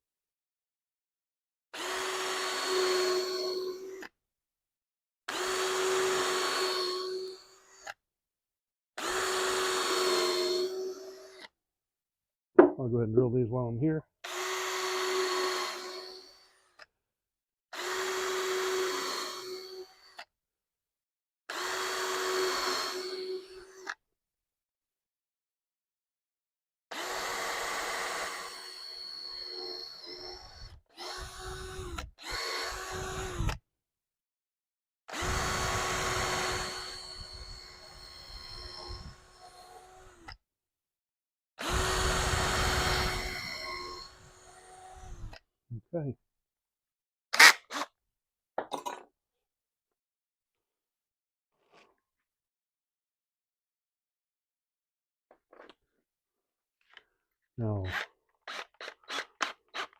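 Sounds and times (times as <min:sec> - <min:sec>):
power drill drilling into wood: 0:01.8 - 0:04.1, 0:05.3 - 0:08.0, 0:09.0 - 0:11.5, 0:14.2 - 0:16.9, 0:17.7 - 0:20.3, 0:21.5 - 0:24.0, 0:26.9 - 0:33.6, 0:35.1 - 0:40.4, 0:41.6 - 0:45.4, 0:47.4 - 0:47.9, 0:57.9 - 0:59.9.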